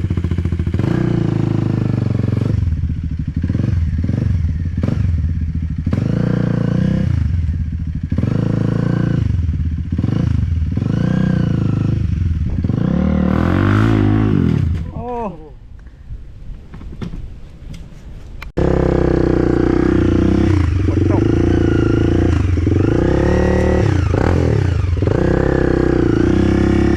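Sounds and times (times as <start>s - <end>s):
dirt bike engine revving: 0.0s - 14.9s, 18.6s - 26.9s.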